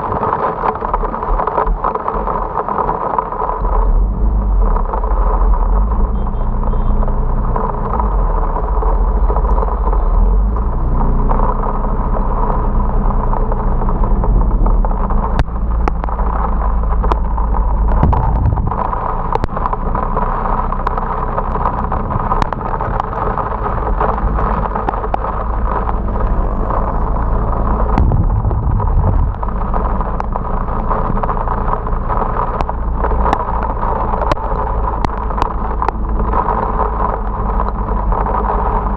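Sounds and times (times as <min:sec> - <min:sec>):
rushing wind: 0:00.0 - 0:06.2, 0:07.2 - 0:38.9
heavy rain: 0:00.0 - 0:38.9
motorcycle engine hum: 0:00.0 - 0:38.9.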